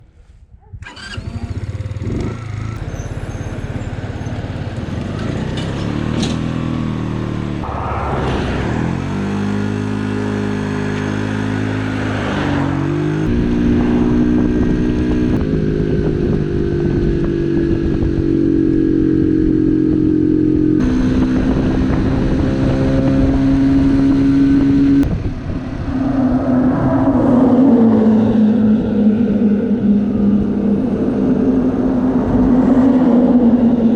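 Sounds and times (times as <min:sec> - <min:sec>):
moped engine running: 0:00.8 - 0:06.1
vehicles overtaking: 0:00.8 - 0:33.9.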